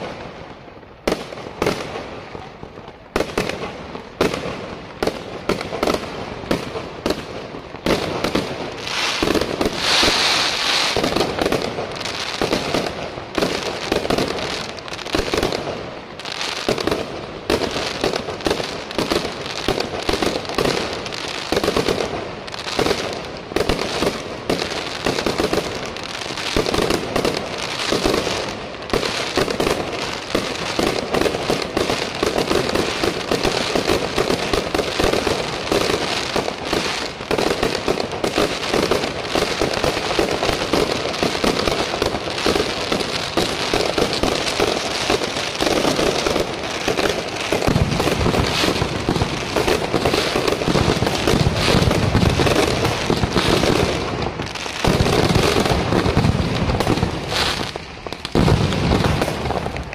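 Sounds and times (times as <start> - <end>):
firecracker bangs: 40.6 - 59.9.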